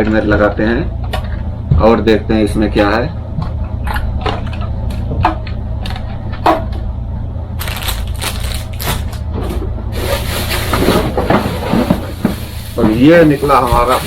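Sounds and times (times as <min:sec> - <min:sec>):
packaging clicks: 0:07.6 - 0:09.3
packaging crackling and rustling: 0:07.6 - 0:09.3.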